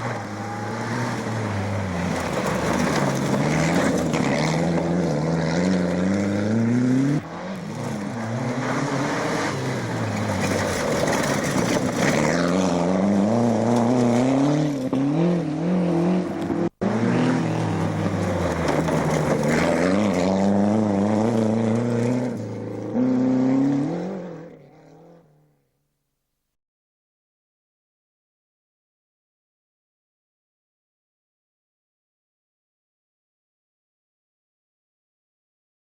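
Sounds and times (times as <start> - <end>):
rally car engines revving: 0.0 - 25.6.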